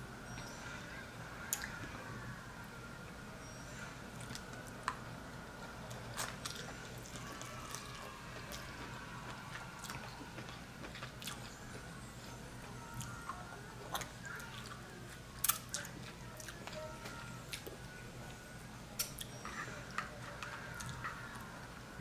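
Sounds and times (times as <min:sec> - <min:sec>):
biting and chewing: 0:05.6 - 0:18.4.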